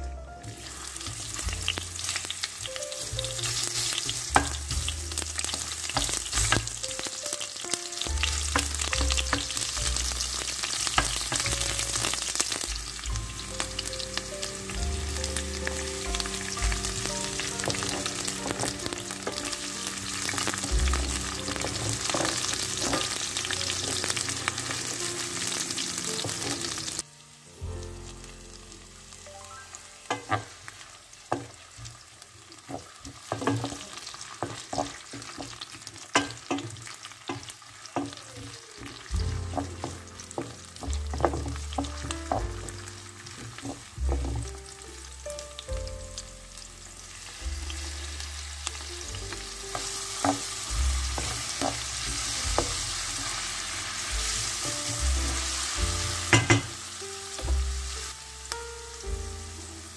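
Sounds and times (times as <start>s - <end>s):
vegetables sizzling in oil: 0.0s - 59.9s
spatula tapping and scraping pan: 3.8s - 6.7s, 30.1s - 30.6s, 32.7s - 38.2s, 38.8s - 44.6s, 49.7s - 50.5s, 56.3s - 56.8s.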